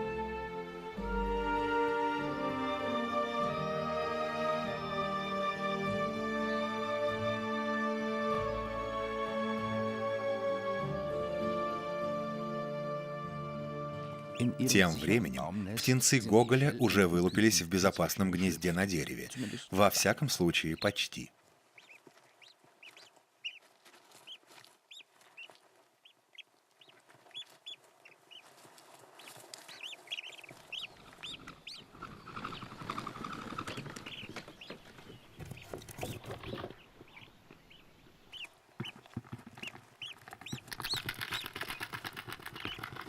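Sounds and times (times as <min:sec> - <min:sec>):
ducklings peeping: 0:14.1 - 0:28.5, 0:29.1 - 0:43.0.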